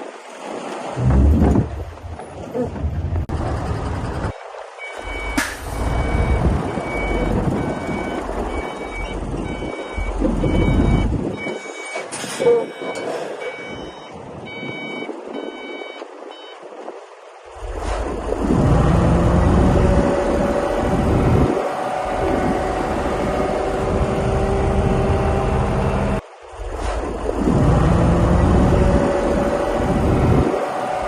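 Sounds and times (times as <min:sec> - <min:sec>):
machine engine rumble: 0:01.0 - 0:14.1, 0:17.5 - 0:30.6
backup alarm beeping: 0:04.8 - 0:16.6.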